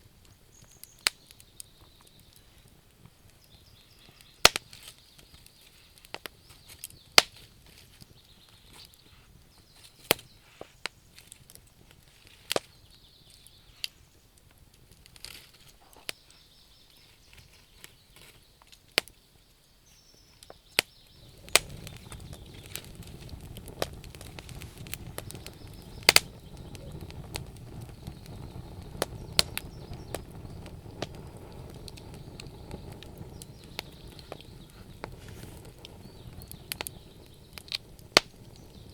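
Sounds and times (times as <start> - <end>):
burning wood crackling: 0.0 - 38.9
steady low rush: 21.2 - 38.9.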